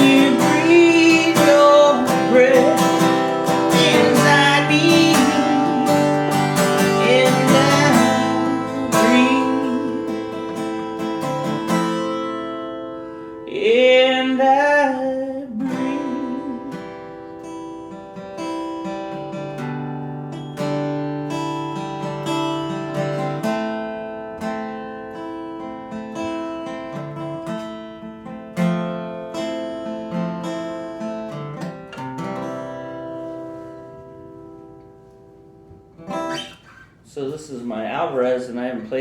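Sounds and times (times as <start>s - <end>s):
person singing: 0.0s - 11.4s, 13.4s - 17.2s
acoustic guitar chords: 0.0s - 39.0s.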